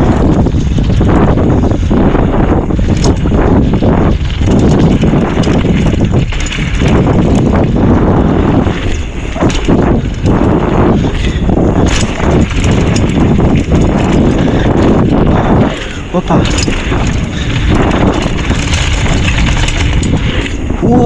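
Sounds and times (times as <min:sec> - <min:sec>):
bike riding on dirt trail: 0:00.0 - 0:21.0
wind buffeting microphone: 0:00.0 - 0:21.0
bike knocking over bumps: 0:02.8 - 0:20.6.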